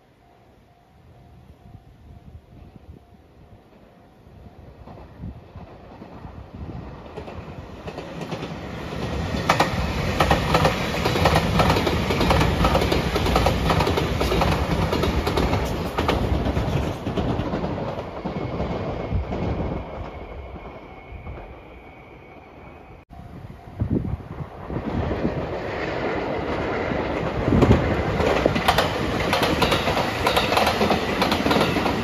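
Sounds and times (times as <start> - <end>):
electric train passing: 0.0 - 32.0
wheels clicking over rail joints: 26.4 - 32.0.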